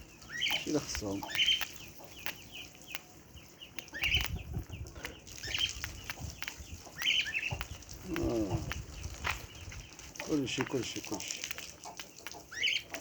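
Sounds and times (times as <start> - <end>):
chickens calling: 0.0 - 13.0
light clicks and taps: 10.2 - 13.0.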